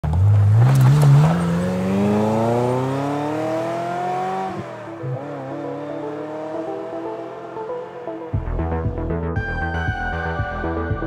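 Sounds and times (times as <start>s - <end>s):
car engine accelerating hard: 0.0s - 8.4s.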